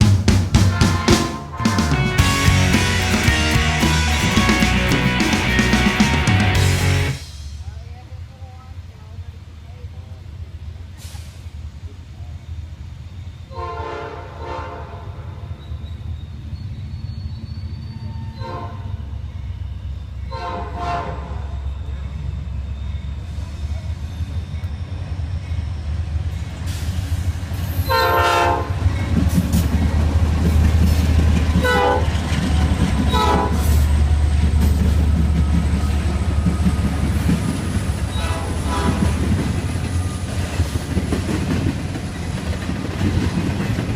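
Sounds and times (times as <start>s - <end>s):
diesel engine rumble: 0.0s - 7.8s
train passing: 0.0s - 43.9s
locomotive air horn blasts: 0.7s - 6.5s, 13.5s - 15.0s, 27.9s - 28.8s, 31.6s - 32.1s, 33.1s - 33.8s, 38.1s - 39.4s.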